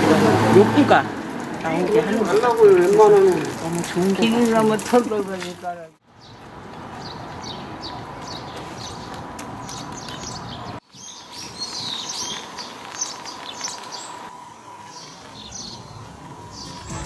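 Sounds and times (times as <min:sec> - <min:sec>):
outdoor background noise: 0:00.0 - 0:17.0
small birds chirping: 0:01.6 - 0:17.0.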